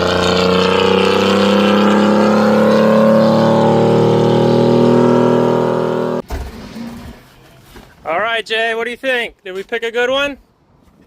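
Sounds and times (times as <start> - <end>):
pickup engine revving hard: 0.0 - 6.2.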